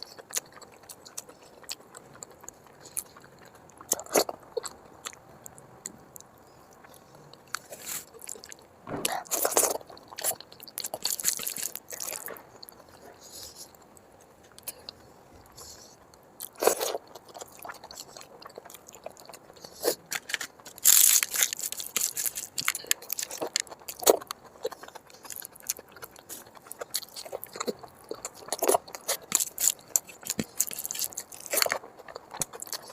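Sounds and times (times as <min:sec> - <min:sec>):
person chewing food: 0:00.0 - 0:32.9.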